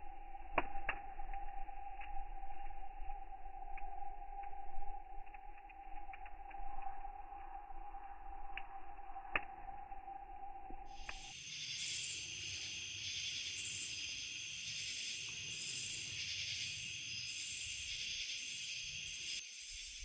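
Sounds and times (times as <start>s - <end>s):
insect chorus droning: 0.0s - 20.0s
sharp clicks: 11.0s - 11.3s.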